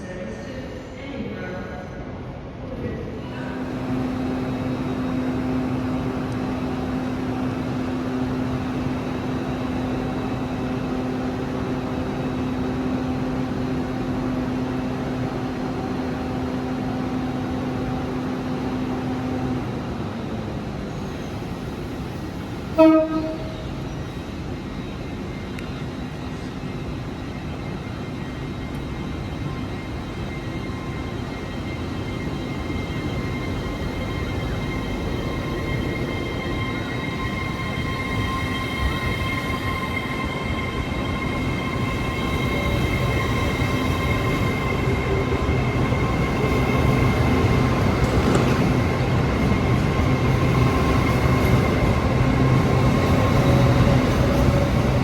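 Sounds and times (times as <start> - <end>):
train running hum: 0.0 - 55.0
train horn toot: 22.7 - 23.8.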